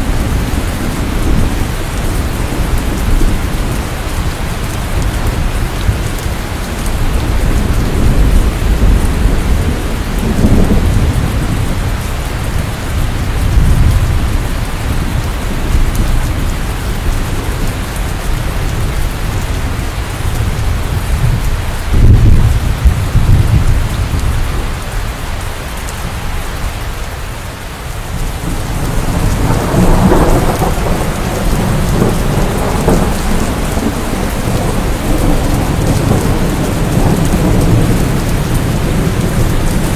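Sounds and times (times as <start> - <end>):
steady rain: 0.0 - 39.9
rolling thunder: 6.9 - 25.0, 28.1 - 39.9.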